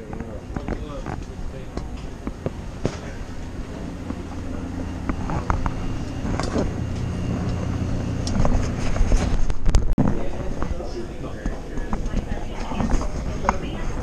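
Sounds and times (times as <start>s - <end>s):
car engine humming: 0.0s - 9.6s.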